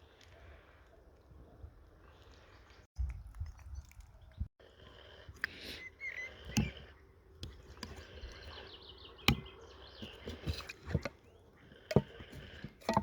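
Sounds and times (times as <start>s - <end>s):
birds chirping: 5.3s - 13.0s.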